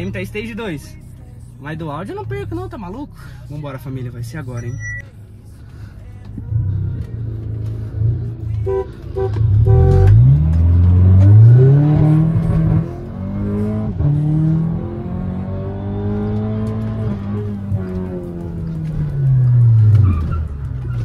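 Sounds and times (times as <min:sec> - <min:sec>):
car engine accelerating hard: 0:06.5 - 0:21.0
car horn honks: 0:08.6 - 0:10.4.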